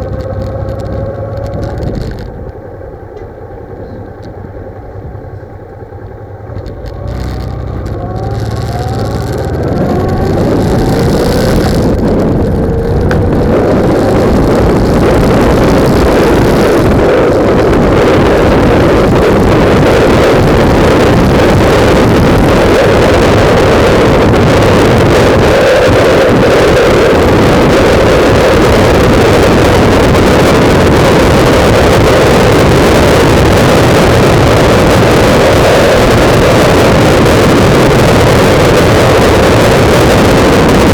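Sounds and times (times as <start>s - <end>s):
motorcycle accelerating: 0.0s - 40.9s
wind buffeting microphone: 0.0s - 40.9s.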